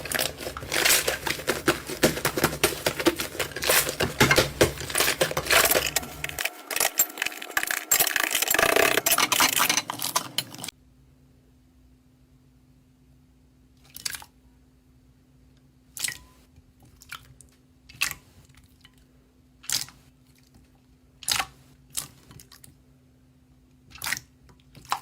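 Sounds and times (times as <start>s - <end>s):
slime being kneaded crackling: 0.0s - 6.3s.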